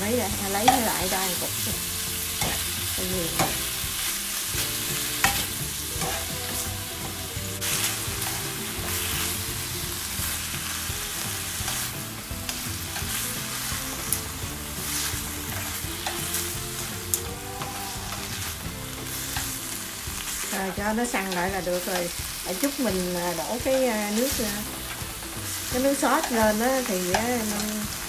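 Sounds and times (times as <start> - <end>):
food sizzling in a pan: 0.0 - 28.0
utensils scraping and clicking on pan: 2.4 - 9.4.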